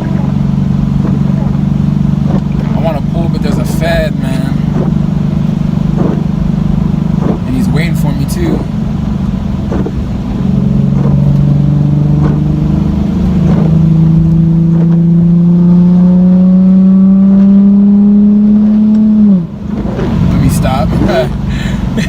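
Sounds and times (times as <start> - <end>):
loud car engine accelerating: 0.0 - 22.0.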